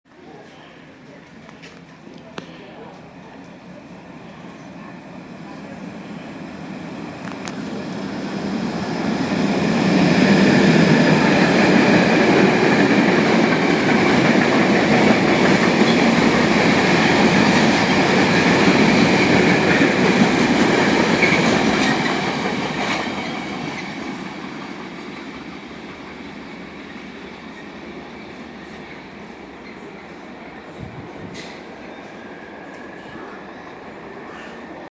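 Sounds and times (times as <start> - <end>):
freight train rumble and wheel noise: 0.3 - 34.9
high whine of locomotive: 0.9 - 34.9.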